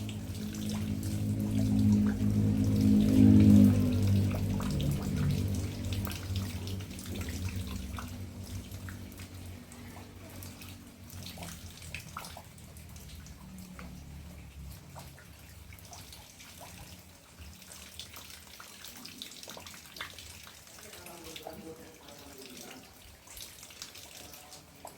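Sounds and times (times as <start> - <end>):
low pitched hum: 0.0 - 11.8
rainwater dripping and trickling: 0.0 - 24.9.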